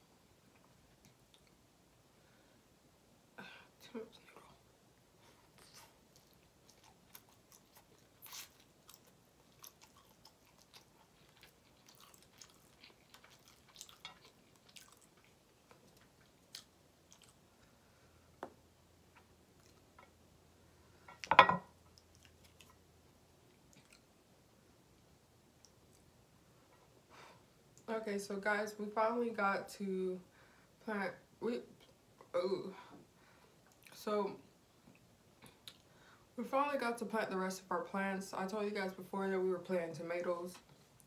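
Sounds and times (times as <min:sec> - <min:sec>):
person chewing noodles: 0:05.6 - 0:17.8, 0:23.5 - 0:24.1.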